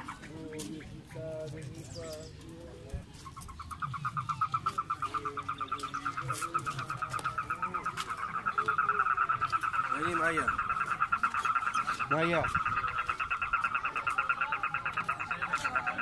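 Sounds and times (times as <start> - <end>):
crowd chatter: 0.0 - 16.0
bird trilling: 3.2 - 16.0.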